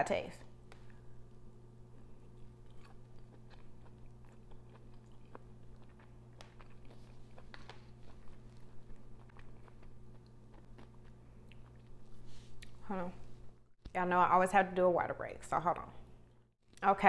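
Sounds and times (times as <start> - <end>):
steady low hum: 0.0 - 17.0
person chewing: 0.7 - 12.8.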